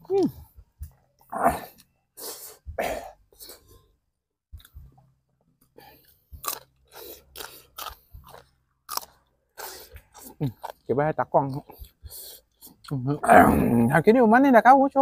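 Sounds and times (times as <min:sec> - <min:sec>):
person chewing and crunching food: 0:04.5 - 0:13.9.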